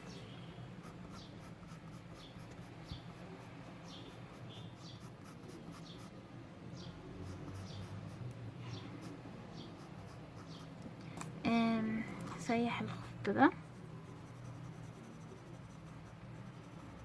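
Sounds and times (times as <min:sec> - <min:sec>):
pencil scratching on paper: 0:00.8 - 0:06.1, 0:07.2 - 0:10.7, 0:13.7 - 0:17.0.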